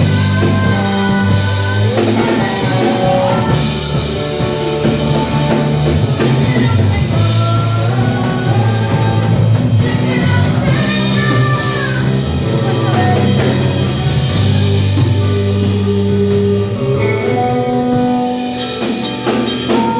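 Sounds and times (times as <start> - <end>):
gospel song played by a band: 0.0 - 19.9.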